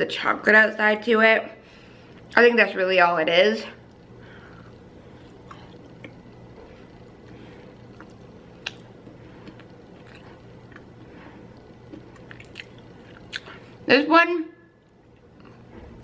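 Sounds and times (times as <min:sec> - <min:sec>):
low steady hum: 0:00.0 - 0:16.0
person chewing: 0:04.4 - 0:13.8, 0:14.8 - 0:15.7
mouth clicks and squishes: 0:08.0 - 0:11.0, 0:11.9 - 0:13.6.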